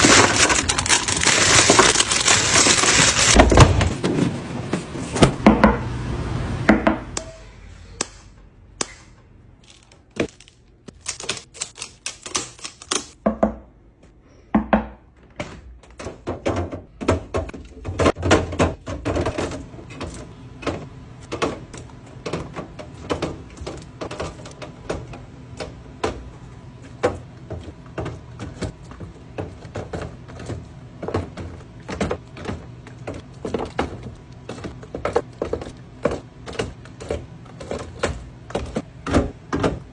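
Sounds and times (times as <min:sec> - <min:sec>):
loud rustling: 0:00.0 - 0:04.5.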